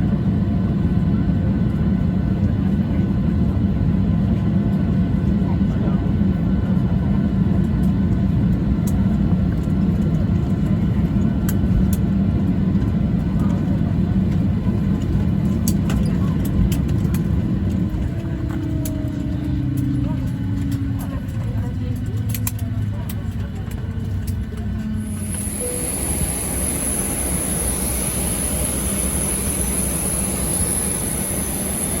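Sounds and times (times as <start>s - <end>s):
jet engines idling rumble: 0.0s - 32.0s
high thin turbine whine: 25.0s - 32.0s.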